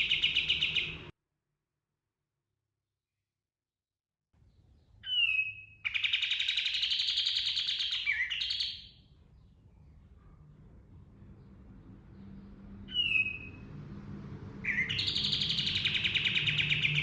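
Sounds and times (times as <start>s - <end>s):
bird whistled note: 12.9s - 13.6s.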